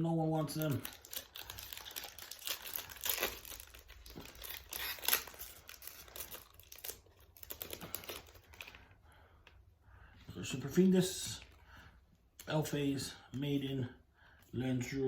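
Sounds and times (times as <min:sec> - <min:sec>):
foil wrapper crinkling and tearing: 0:00.4 - 0:08.9.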